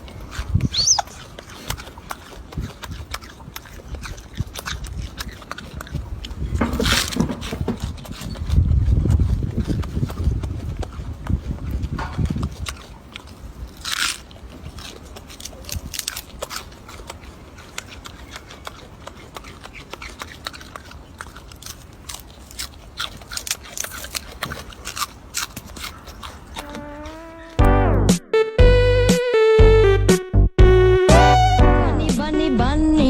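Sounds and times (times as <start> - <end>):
crunchy chewing: 0.0 - 27.8
loud low rumble: 27.6 - 33.0.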